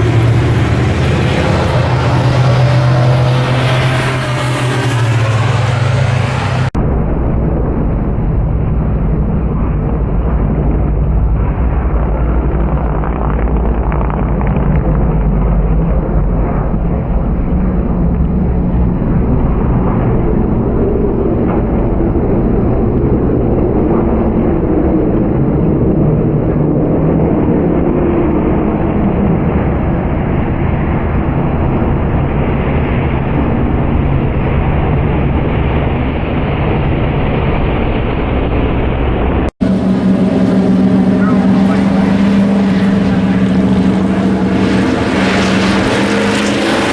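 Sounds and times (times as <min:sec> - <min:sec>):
race truck engines droning: 0:00.0 - 0:25.6, 0:39.6 - 0:46.9.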